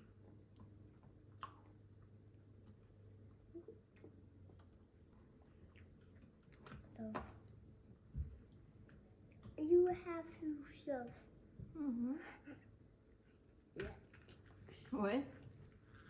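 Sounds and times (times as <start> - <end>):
faint chewing: 0.0 - 7.6, 13.1 - 16.0.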